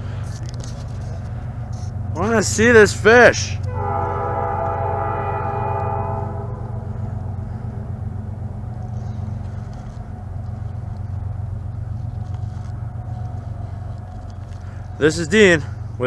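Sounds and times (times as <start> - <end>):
low rumble: 0.0 - 15.0
train horn: 2.2 - 9.5.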